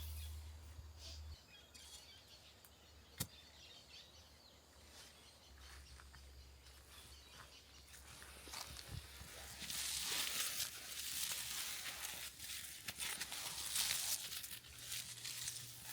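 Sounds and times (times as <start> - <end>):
faint bird chirps: 0.0 - 8.3.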